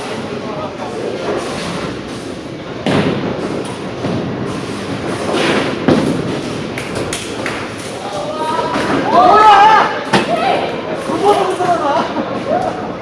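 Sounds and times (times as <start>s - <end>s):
bowling balls rumbling along lanes: 0.0s - 13.0s.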